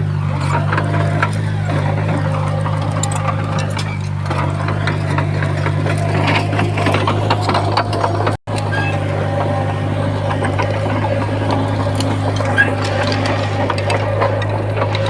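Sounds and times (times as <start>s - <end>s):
bulldozer diesel engine humming: 0.0s - 15.0s
machine clicks and rattles: 0.1s - 15.0s.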